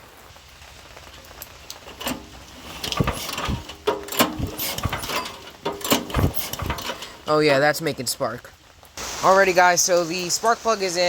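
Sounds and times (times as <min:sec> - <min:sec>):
recoil starter cord clattering: 0:01.7 - 0:07.6.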